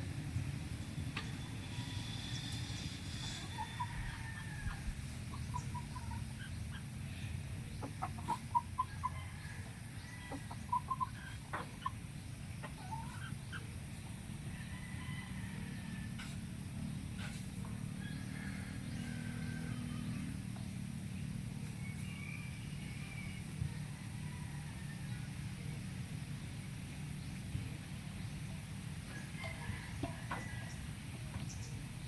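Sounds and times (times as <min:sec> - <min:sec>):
chickens clucking: 0:01.0 - 0:32.0.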